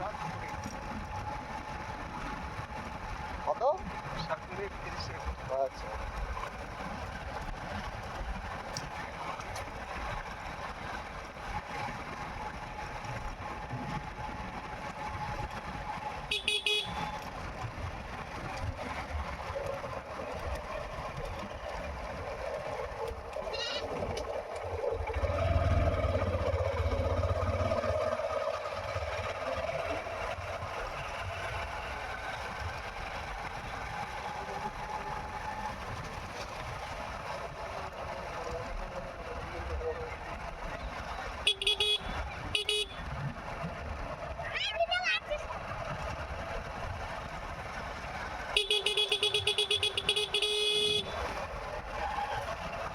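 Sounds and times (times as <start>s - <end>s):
motorcycle engine running: 0.0s - 52.9s
short horn beep: 16.3s - 17.2s, 41.5s - 43.0s, 48.6s - 51.2s.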